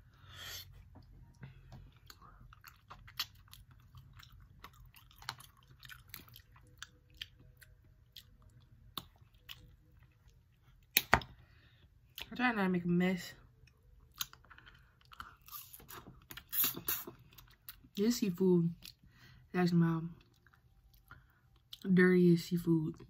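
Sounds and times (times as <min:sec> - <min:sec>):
faint chewing: 0:00.7 - 0:11.0, 0:13.6 - 0:17.9.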